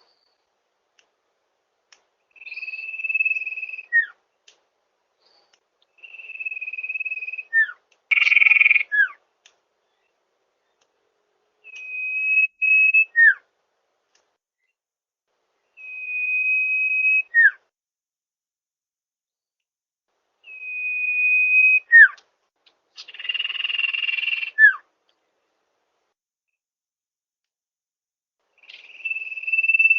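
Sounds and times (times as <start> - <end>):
bird whistling call: 2.4 - 4.2, 6.0 - 9.2, 11.6 - 13.4, 15.8 - 17.6, 20.4 - 22.2, 23.0 - 24.8, 28.6 - 29.9
harsh buzzy bird call: 6.1 - 9.2.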